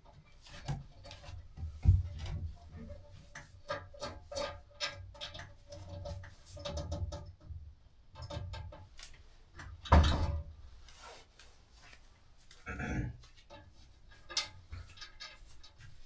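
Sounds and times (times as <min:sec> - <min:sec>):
clicks taps and scraping on light fixture: 0:00.4 - 0:07.6, 0:13.2 - 0:16.0.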